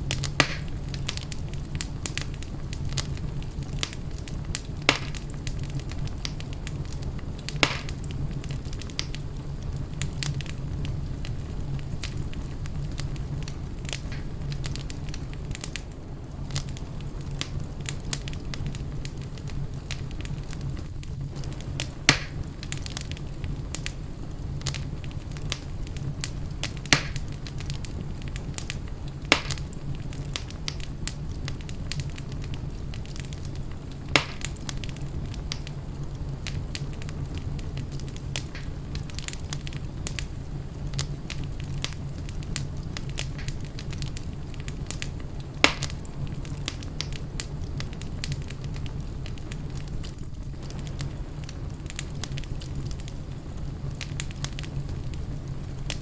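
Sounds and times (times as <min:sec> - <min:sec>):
burning logs popping: 0:00.0 - 0:56.0
fire crackling: 0:00.0 - 0:56.0
flames rumbling: 0:00.0 - 0:56.0.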